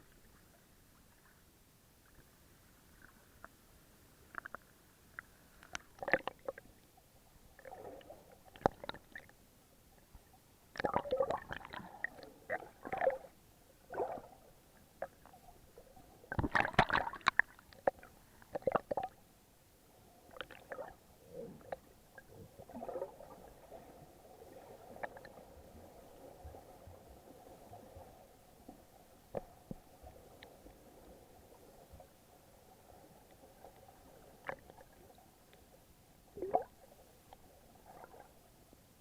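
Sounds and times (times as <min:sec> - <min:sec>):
faint steady hum: 0:00.0 - 0:39.0
muffled underwater splashes and gurgles: 0:05.7 - 0:06.8, 0:07.5 - 0:09.4, 0:10.7 - 0:19.2, 0:20.1 - 0:35.4, 0:36.3 - 0:38.5.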